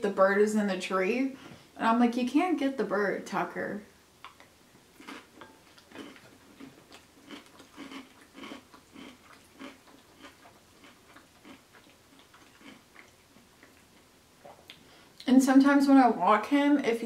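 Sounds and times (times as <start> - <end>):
person chewing food: 4.2 - 14.9.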